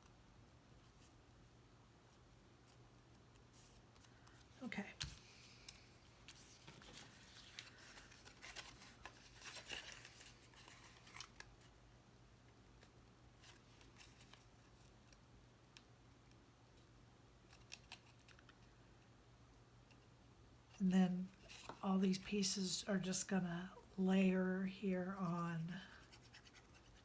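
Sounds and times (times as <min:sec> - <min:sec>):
paper rustling: 0:03.6 - 0:11.7.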